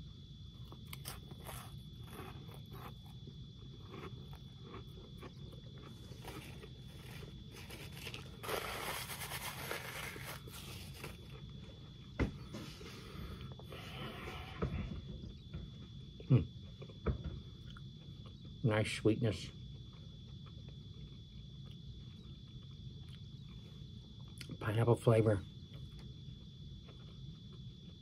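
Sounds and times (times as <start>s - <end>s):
crunchy chewing: 0.0s - 28.0s
paper napkin rustling: 6.4s - 11.2s.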